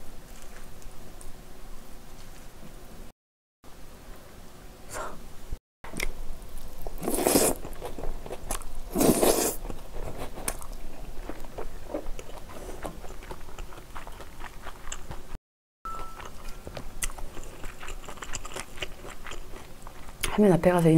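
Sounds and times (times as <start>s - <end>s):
chewing with wet mouth clicks: 10.4s - 15.4s, 16.0s - 20.4s.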